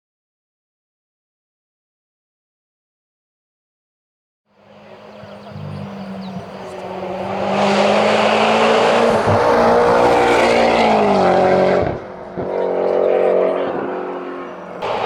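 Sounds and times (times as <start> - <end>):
car engine at full throttle: 4.6 - 15.0.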